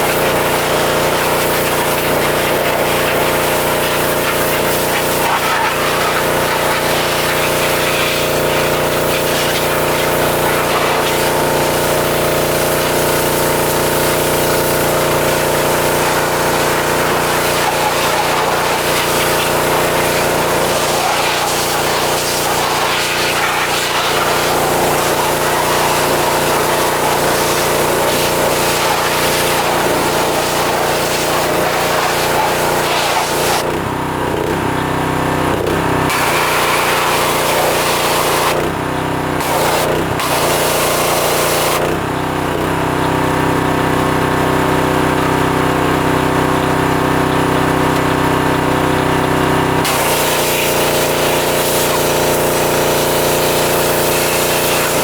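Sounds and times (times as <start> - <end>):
pressure washer spray hissing: 0.0 - 33.7, 36.1 - 38.6, 39.4 - 41.8, 49.8 - 55.0
small gas engine running: 0.0 - 55.0.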